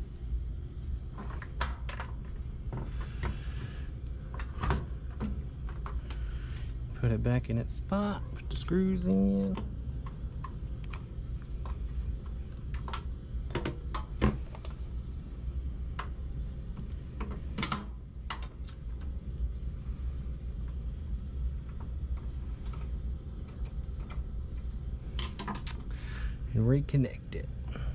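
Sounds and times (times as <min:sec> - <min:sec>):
steady low hum: 0:00.0 - 0:27.9
clicks and knocks of parts: 0:01.1 - 0:03.7, 0:09.5 - 0:14.8, 0:15.9 - 0:19.4, 0:21.6 - 0:26.0.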